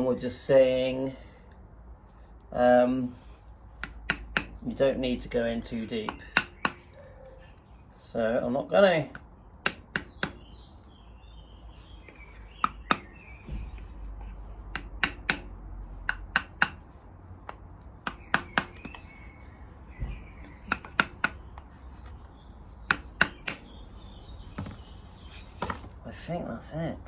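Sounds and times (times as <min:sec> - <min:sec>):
birds chirping faintly: 0:00.0 - 0:27.0
sharp metallic taps: 0:03.8 - 0:04.7, 0:05.9 - 0:07.0, 0:09.1 - 0:10.6, 0:12.4 - 0:14.0, 0:14.6 - 0:19.3, 0:20.0 - 0:22.2, 0:22.8 - 0:23.8.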